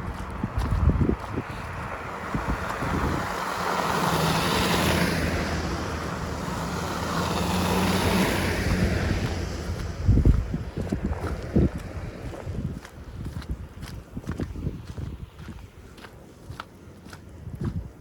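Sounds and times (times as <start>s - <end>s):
vehicles passing with tyre noise: 0.0s - 18.0s.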